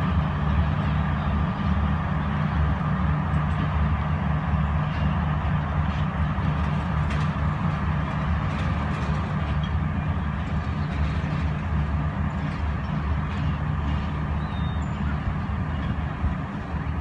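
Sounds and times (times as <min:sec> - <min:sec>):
train pulling away rumbling: 0:00.0 - 0:17.0.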